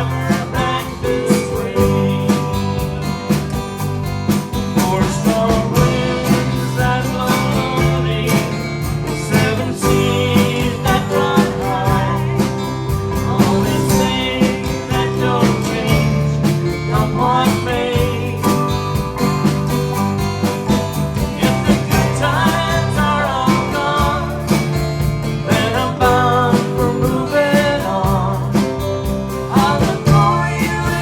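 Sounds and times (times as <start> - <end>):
melody line over chords: 0.0 - 4.0
acoustic guitar strumming: 0.0 - 31.0.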